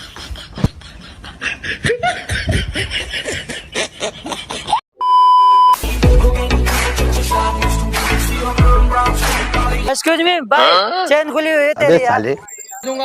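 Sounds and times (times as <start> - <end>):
snickering and laughter: 0.0 - 4.8
censor bleep: 5.0 - 5.8
loud background music: 5.8 - 9.9.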